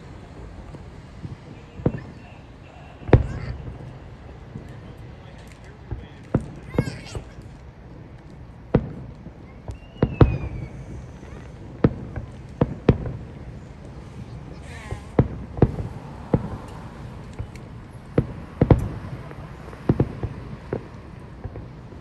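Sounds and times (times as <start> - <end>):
fireworks banging: 0.0 - 22.0.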